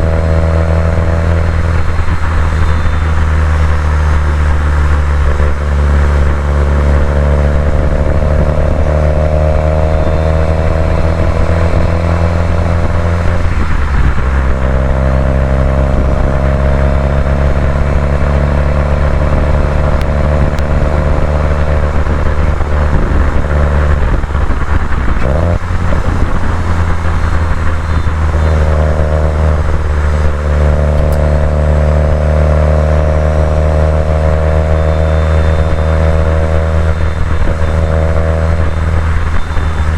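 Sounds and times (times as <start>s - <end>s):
car engine pulling under load: 0.0s - 39.9s.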